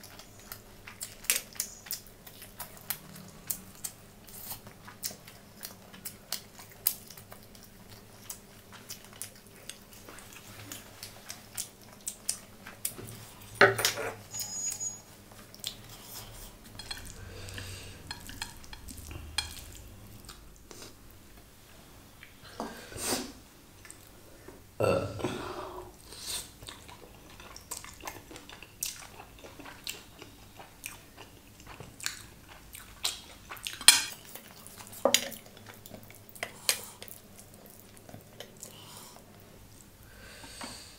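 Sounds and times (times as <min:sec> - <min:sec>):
chewing and biting food: 0:00.0 - 0:13.4, 0:26.6 - 0:38.8.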